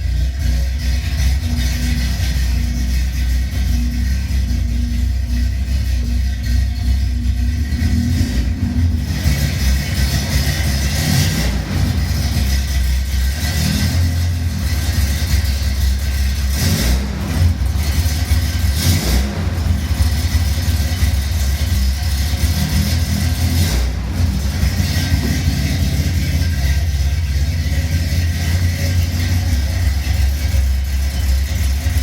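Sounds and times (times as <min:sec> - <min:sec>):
car engine running: 0:00.0 - 0:32.0.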